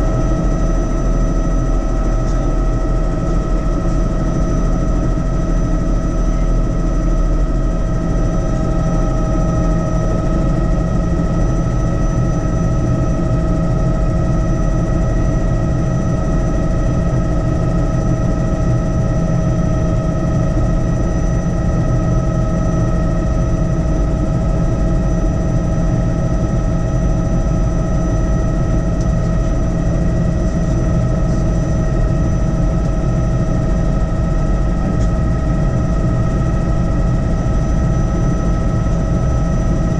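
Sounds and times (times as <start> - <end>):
helicopter rotor rumble: 0.0 - 39.9
high turbine whine: 0.0 - 39.9.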